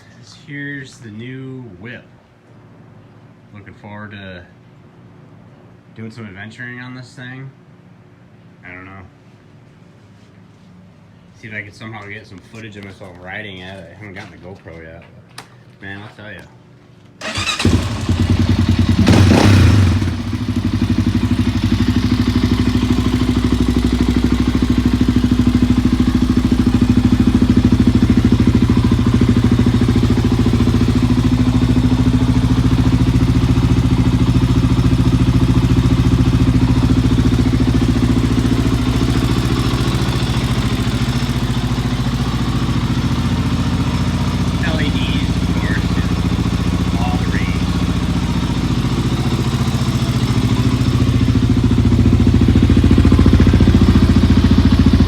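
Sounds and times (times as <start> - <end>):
engine revving then idling: 17.2 - 55.0.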